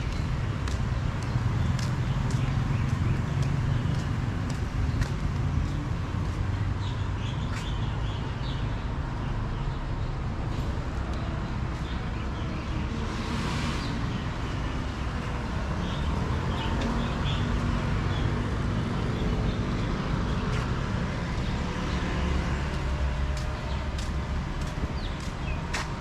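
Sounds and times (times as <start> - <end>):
traffic rumble: 0.0 - 26.0.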